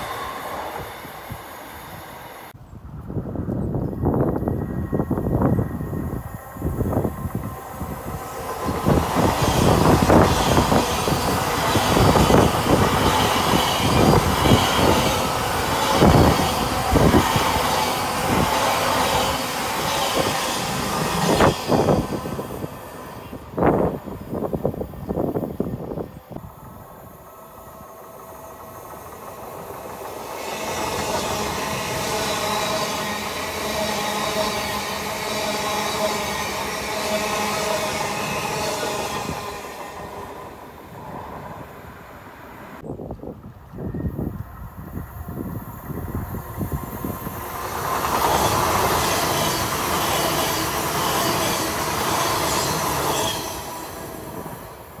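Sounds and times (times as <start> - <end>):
train wheels rushing on rail: 0.0 - 55.0
wind buffeting microphone: 0.3 - 27.3, 42.8 - 53.1.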